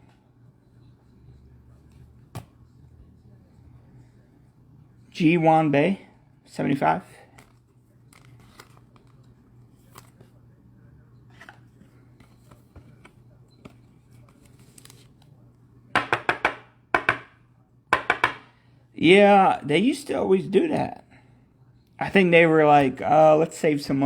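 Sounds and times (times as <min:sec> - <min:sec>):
low steady hum: 0:00.0 - 0:24.0
cards clicking and rustling: 0:07.4 - 0:10.3, 0:11.3 - 0:15.3.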